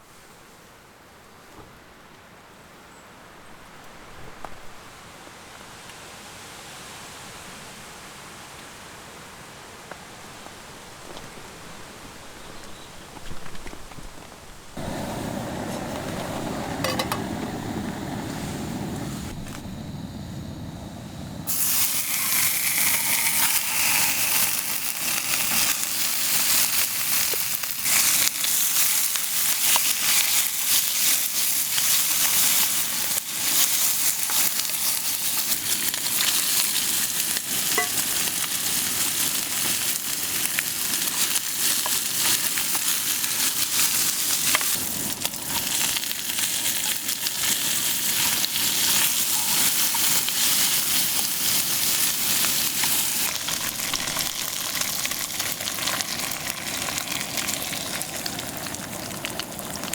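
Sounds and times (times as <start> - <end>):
food sizzling in a hot pan: 21.5 - 59.9.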